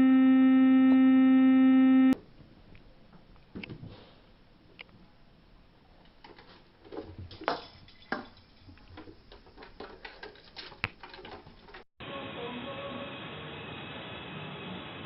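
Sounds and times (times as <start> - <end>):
steady hum: 0.0 - 2.2.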